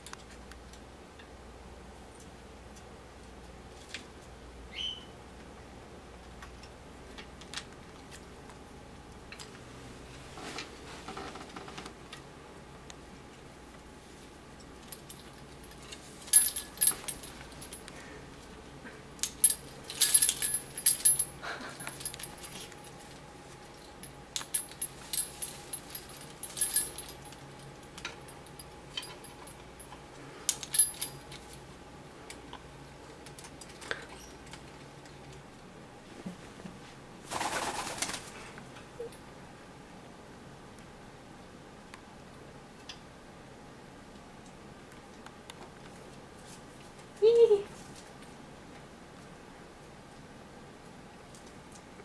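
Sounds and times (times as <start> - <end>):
light metallic jingles: 14.8 - 18.0, 19.2 - 23.0, 23.7 - 31.5
rustling: 19.3 - 29.6.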